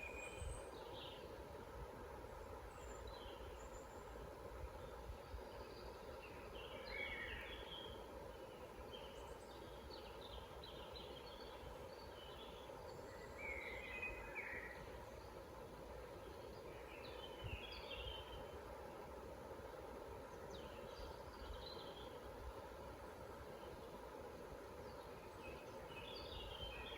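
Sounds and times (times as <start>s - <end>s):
low background noise: 0.0s - 26.9s
small birds chirping: 16.1s - 18.6s, 20.2s - 22.8s, 24.8s - 26.9s.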